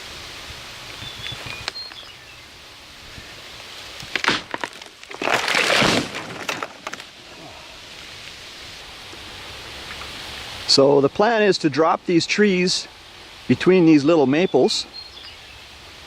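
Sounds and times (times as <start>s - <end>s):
wood cracking and breaking: 4.0s - 7.1s.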